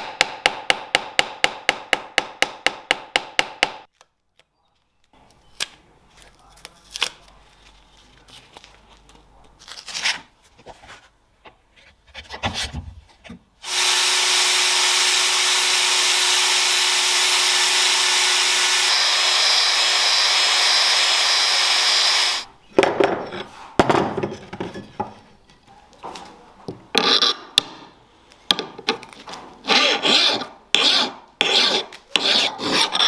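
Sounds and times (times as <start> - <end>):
electric power tool humming: 13.6 - 22.5
knocks of work being handled: 22.7 - 25.3.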